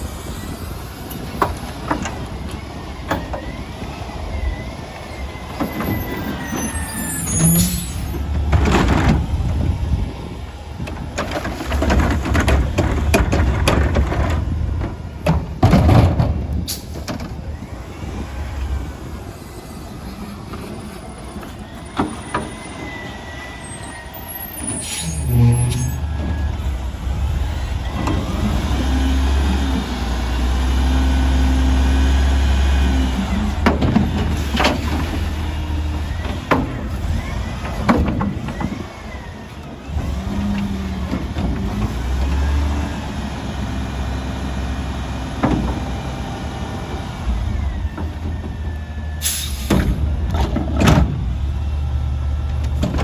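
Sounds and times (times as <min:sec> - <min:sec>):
garbage truck engine revving: 0:00.0 - 0:19.3, 0:24.3 - 0:53.0
air brakes hissing: 0:05.6 - 0:08.3, 0:16.6 - 0:17.1, 0:19.2 - 0:26.9, 0:49.2 - 0:50.1.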